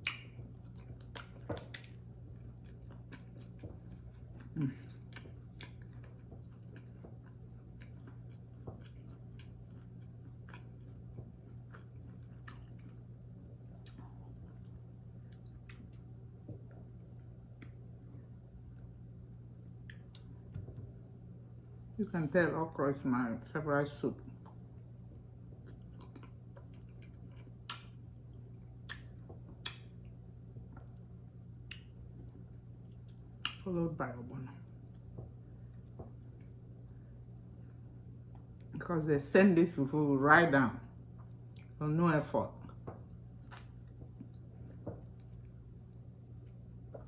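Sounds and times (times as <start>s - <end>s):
wet mouth clicks and smacks: 0.0s - 2.0s, 27.6s - 30.0s, 31.6s - 32.4s, 43.4s - 44.3s
mouth chewing sounds: 0.0s - 16.8s, 25.4s - 30.0s
steady low hum: 0.0s - 47.0s.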